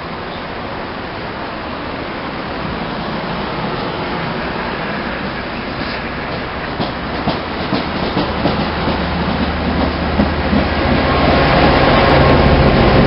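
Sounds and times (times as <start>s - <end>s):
train low drone: 0.0s - 13.0s
train wheels clicking over rail joints: 5.1s - 13.0s.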